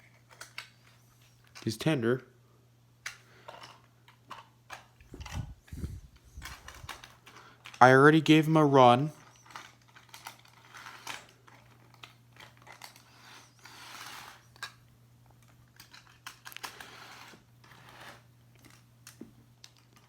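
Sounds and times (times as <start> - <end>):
toy train handling clicks: 0.0 - 1.8, 6.4 - 7.9, 9.2 - 14.8, 15.4 - 20.0
steady low hum: 0.1 - 19.7.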